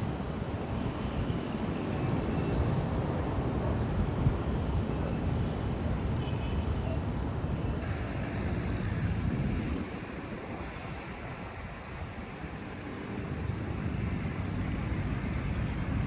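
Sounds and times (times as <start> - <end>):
low outdoor rumble: 7.0 - 16.0.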